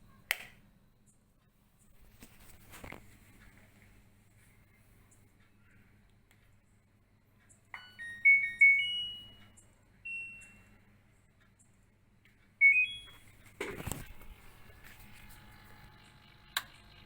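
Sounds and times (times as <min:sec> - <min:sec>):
washing machine panel beeps: 0:07.8 - 0:10.7, 0:12.6 - 0:13.3.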